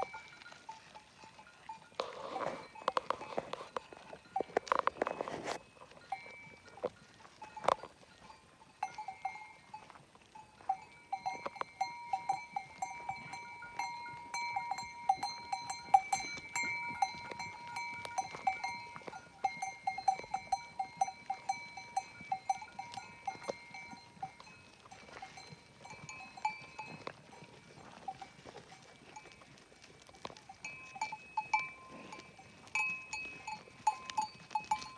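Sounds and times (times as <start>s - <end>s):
livestock bells clinking: 0.0s - 34.9s.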